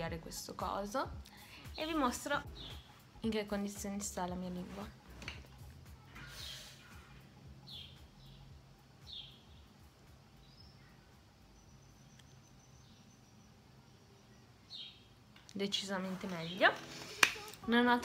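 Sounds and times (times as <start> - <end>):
faint bird chirps: 5.9 - 15.2.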